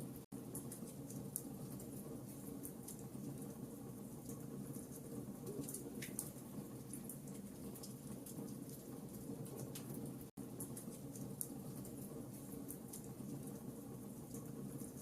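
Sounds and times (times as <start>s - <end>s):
low burning hiss: 0.0s - 15.0s
wood fire crackling: 0.0s - 15.0s.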